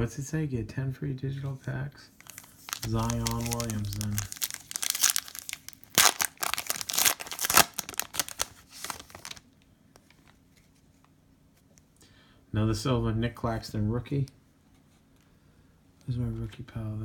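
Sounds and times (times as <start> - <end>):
wrapper crinkling and tearing: 2.2 - 9.4.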